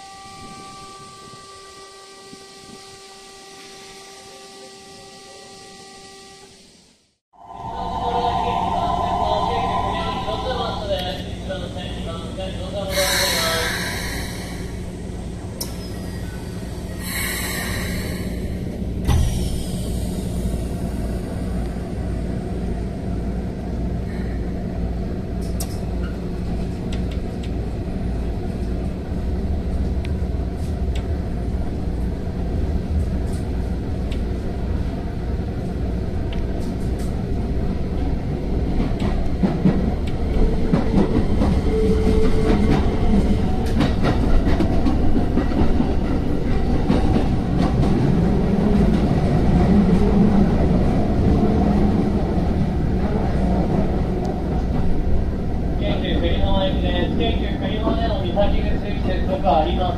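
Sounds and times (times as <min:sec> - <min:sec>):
air brake hiss: 0:12.9 - 0:14.9, 0:16.8 - 0:21.0.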